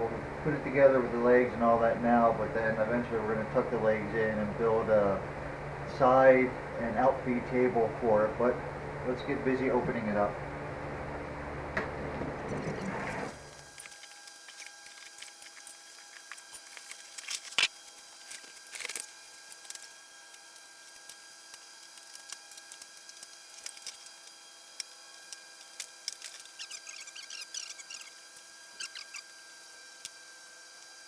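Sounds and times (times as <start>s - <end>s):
crackling: 13.6s - 29.4s
cardboard rustling: 13.9s - 20.0s.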